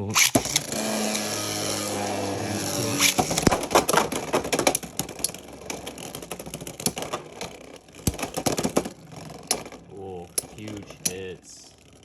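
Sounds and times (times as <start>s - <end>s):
launcher whine: 0.0s - 3.9s
spinning tops clacking together: 0.0s - 7.2s.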